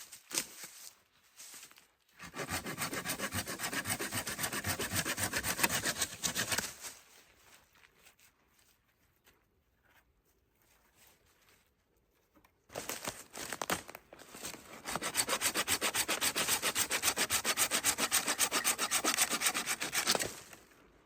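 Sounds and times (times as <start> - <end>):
hand saw cutting wood: 2.2 - 6.8, 14.5 - 20.6.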